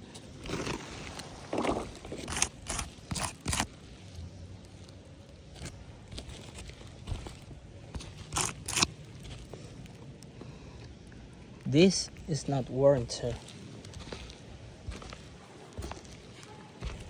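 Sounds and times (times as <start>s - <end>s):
footsteps crunching on roof: 5.5s - 9.8s, 13.2s - 17.0s.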